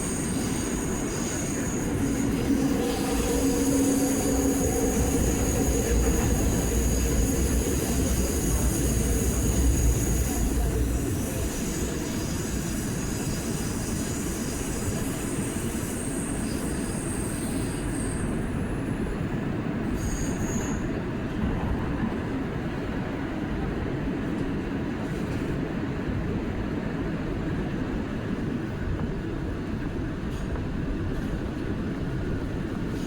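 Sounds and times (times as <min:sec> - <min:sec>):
high wheel squeal: 0:00.0 - 0:18.6, 0:19.9 - 0:20.9
subway wheels rumbling on rail: 0:00.0 - 0:33.0.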